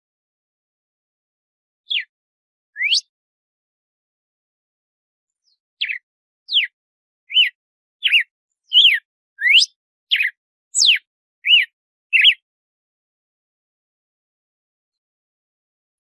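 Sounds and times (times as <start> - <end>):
bird whistling song: 1.9 - 2.1, 2.7 - 3.1, 5.4 - 12.4.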